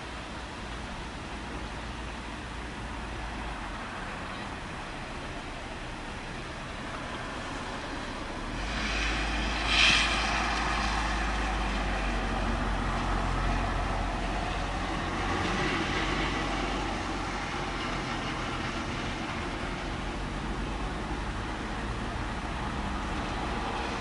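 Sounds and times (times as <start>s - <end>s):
rain hissing: 0.0s - 24.0s.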